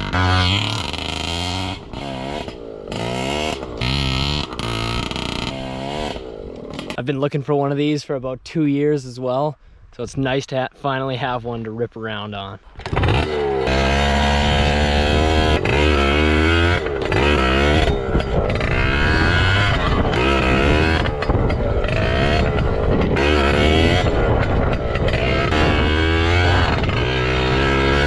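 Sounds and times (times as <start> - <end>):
two-stroke motorbike engine revving: 0.0 - 7.0, 12.8 - 28.0.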